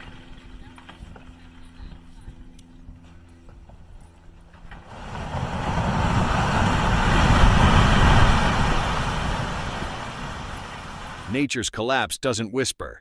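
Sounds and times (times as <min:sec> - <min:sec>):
glacier ice collapsing into water: 0:04.8 - 0:11.3.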